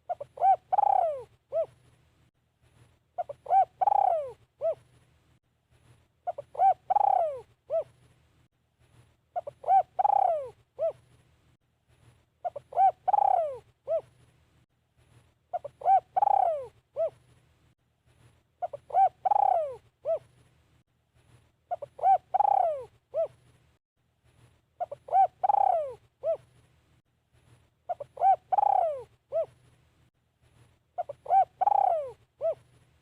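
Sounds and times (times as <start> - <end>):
dove cooing: 0.0 - 1.8, 3.2 - 4.9, 6.2 - 8.0, 9.4 - 11.0, 12.4 - 14.1, 15.5 - 17.2, 18.6 - 20.3, 21.7 - 23.4, 24.8 - 26.5, 27.9 - 29.6, 31.0 - 32.7.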